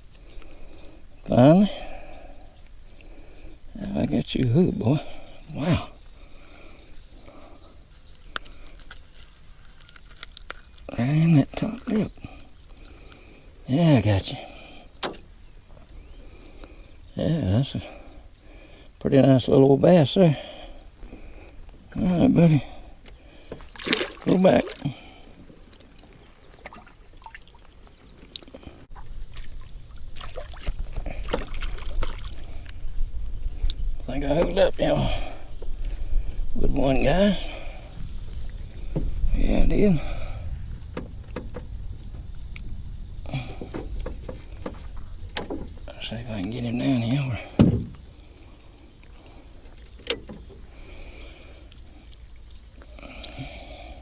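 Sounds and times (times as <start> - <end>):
water lapping around a boat: 22.8 - 32.8
handling sounds in a boat: 23.0 - 32.9, 34.1 - 34.9, 40.8 - 42.4, 43.3 - 51.4
low rumble: 28.8 - 47.1
light knocks and clicks: 40.9 - 42.2, 43.5 - 45.8.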